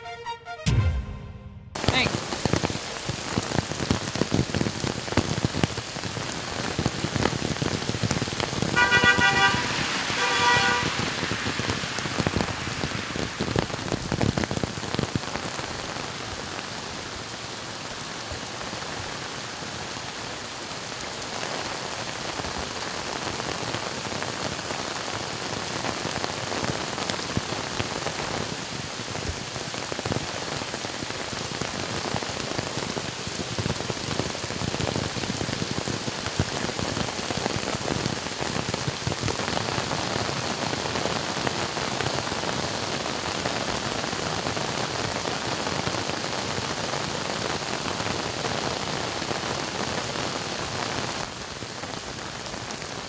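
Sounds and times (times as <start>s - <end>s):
car horn toots: 0.0s - 1.7s, 8.8s - 11.1s
heavy rain pouring on street: 1.8s - 53.0s.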